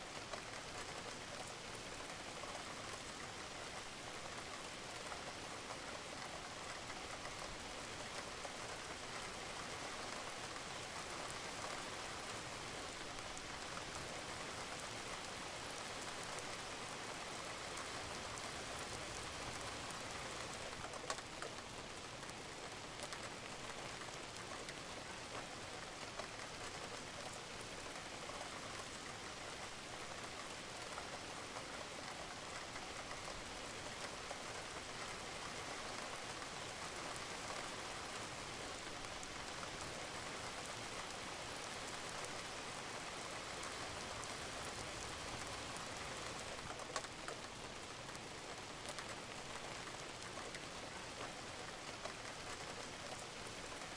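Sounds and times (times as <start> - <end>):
rain falling on a roof: 0.0 - 53.9.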